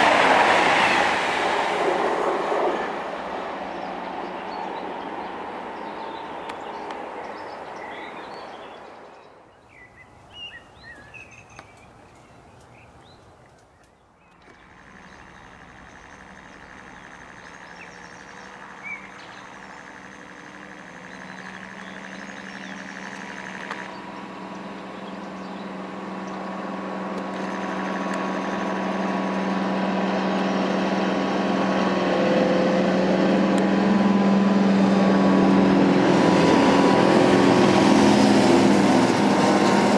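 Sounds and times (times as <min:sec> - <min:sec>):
train noise: 0:00.0 - 0:09.5, 0:10.1 - 0:39.9
diesel locomotive engines droning: 0:00.0 - 0:39.9
bird chirps: 0:03.7 - 0:26.6.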